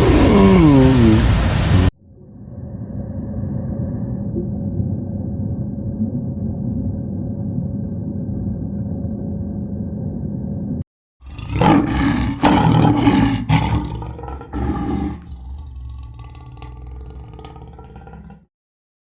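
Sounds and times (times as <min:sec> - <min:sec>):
large animal roaring: 0:11.2 - 0:18.4.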